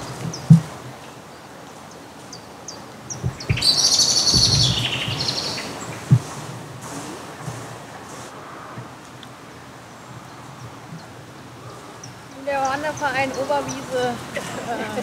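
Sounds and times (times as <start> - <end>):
dull low thumps: 0.0 - 0.8, 3.1 - 8.2
songbird chirping and trilling: 0.0 - 6.9, 9.1 - 14.4.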